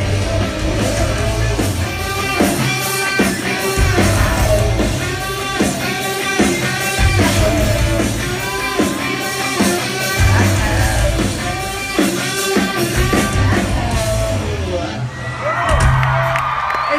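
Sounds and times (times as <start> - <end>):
electric guitar: 0.0 - 16.6
live rock band playing: 0.0 - 16.6.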